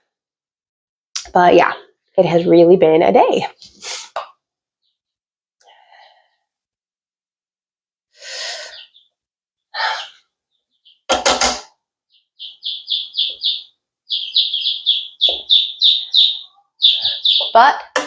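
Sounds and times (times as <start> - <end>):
chicks peeping: 8.4 - 9.1, 9.8 - 11.1, 12.1 - 17.9.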